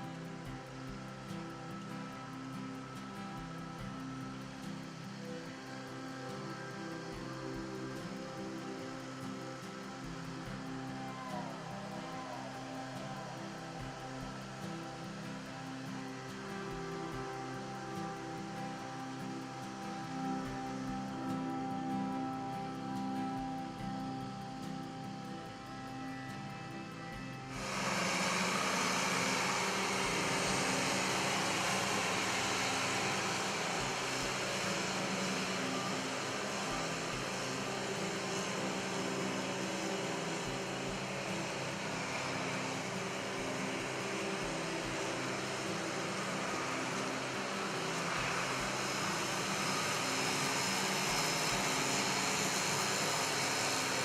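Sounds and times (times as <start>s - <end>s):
fan-like hissing: 0.0s - 54.0s
tractor diesel engine droning: 27.5s - 54.0s.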